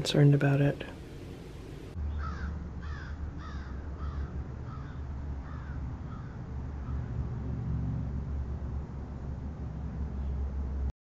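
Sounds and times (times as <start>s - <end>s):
bird calling: 2.1s - 7.0s.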